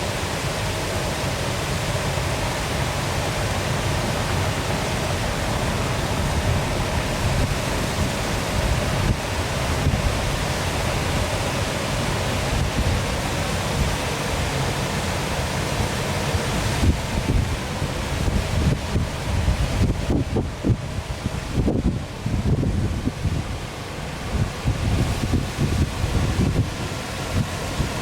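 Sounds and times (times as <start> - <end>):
waterfall rushing and splashing: 0.0 - 28.0
wind buffeting microphone: 4.0 - 14.1, 16.6 - 28.0.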